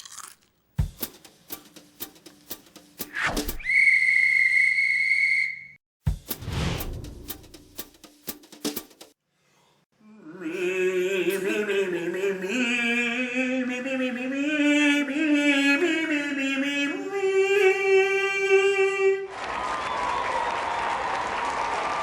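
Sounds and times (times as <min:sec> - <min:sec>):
person singing with vibrato: 0:10.0 - 0:19.3.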